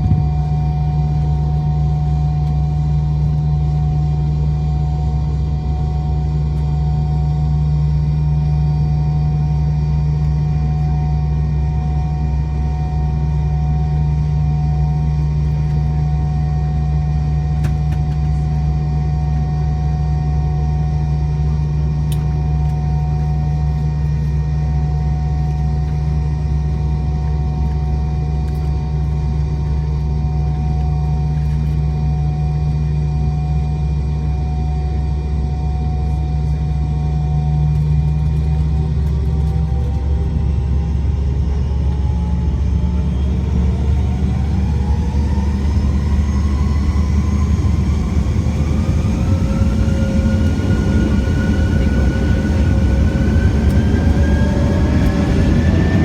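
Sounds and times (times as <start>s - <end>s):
airliner cabin engine rumble and whine: 0.0s - 56.0s.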